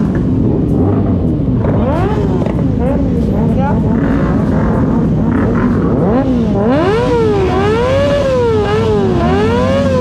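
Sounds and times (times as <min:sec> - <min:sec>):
engine idling: 0:00.0 - 0:06.9
motorcycle engine revving: 0:00.0 - 0:10.0.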